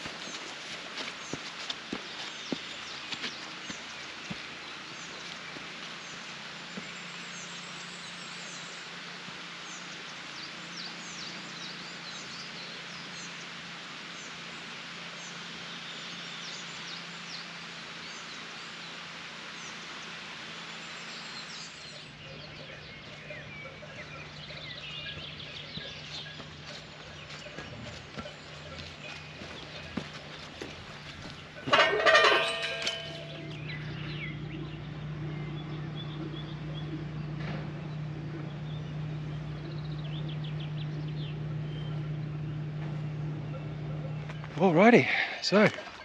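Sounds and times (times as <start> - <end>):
small birds chirping: 0.0 - 46.0
low hum: 21.8 - 44.6.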